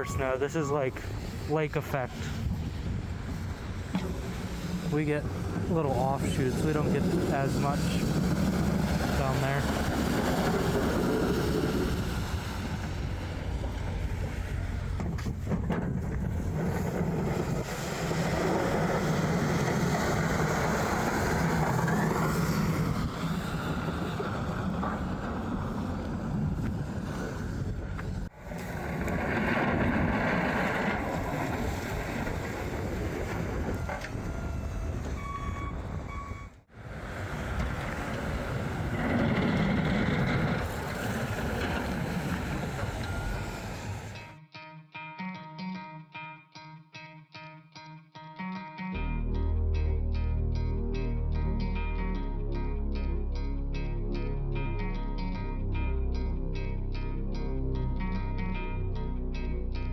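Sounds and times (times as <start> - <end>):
road and wind noise: 0.0 - 44.4
truck engine hum: 0.0 - 44.4.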